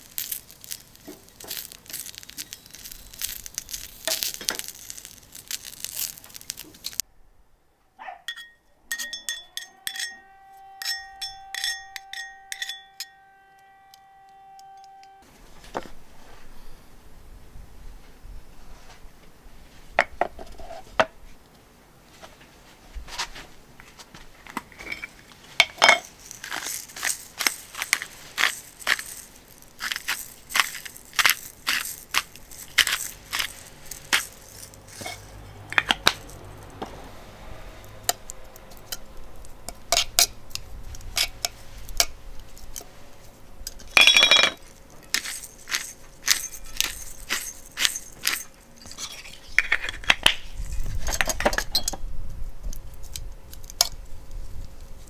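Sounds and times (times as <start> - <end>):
utensils clinking on frying pan: 0.0 - 7.0, 8.3 - 13.2, 24.7 - 36.8, 39.7 - 40.4, 43.7 - 50.1.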